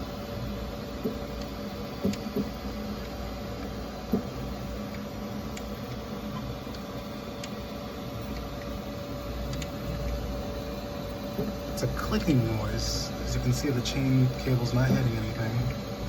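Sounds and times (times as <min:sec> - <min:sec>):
printer humming: 0:00.0 - 0:16.0.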